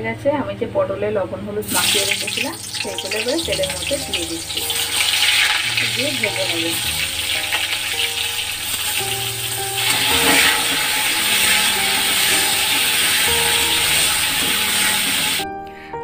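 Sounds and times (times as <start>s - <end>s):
background music: 0.0s - 16.0s
gourds sizzling in hot oil: 1.6s - 15.5s.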